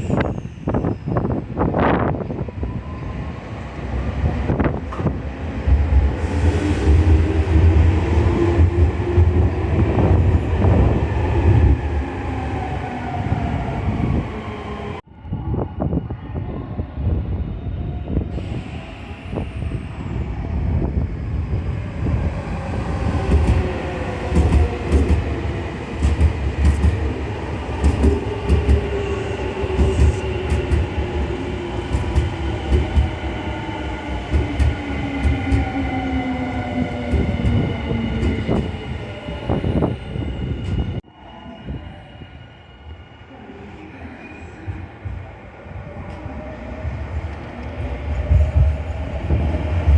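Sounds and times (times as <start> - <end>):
train wheels clacking: 27.8 - 28.9.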